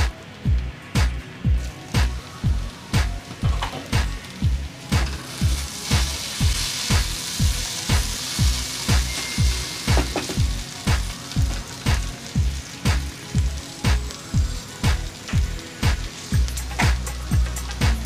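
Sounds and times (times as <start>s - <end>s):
background music with steady beat: 0.0s - 18.0s
food sizzling in a wok: 0.0s - 18.0s.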